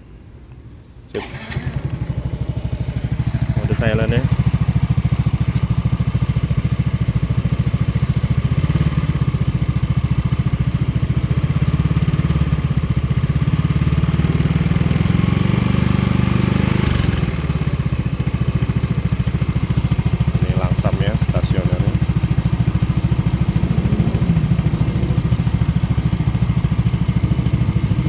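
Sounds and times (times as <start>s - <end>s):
scooter engine idling: 1.2s - 28.0s.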